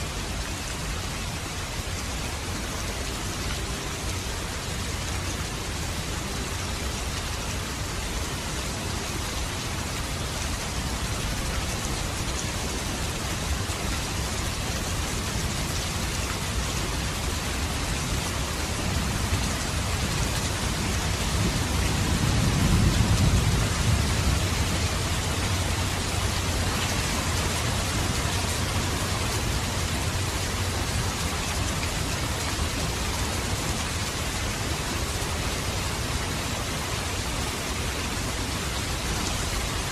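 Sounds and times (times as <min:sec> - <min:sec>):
steady rain falling: 0:00.0 - 0:39.9
low rumble of thunder: 0:18.6 - 0:29.7.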